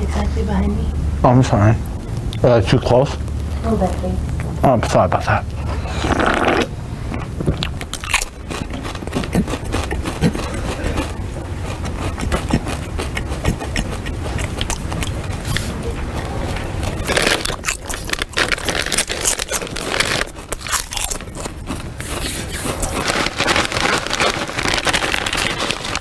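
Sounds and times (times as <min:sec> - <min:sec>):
person crunching while chewing: 0:05.6 - 0:26.0.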